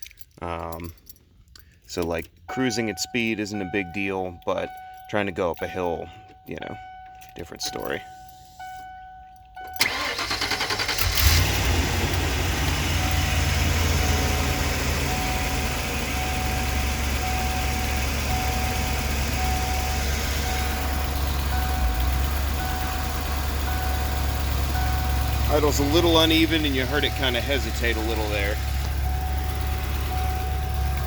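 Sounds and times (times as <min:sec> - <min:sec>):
faint chime beeping: 0:02.6 - 0:09.8
van engine cranking and idling: 0:09.6 - 0:31.0.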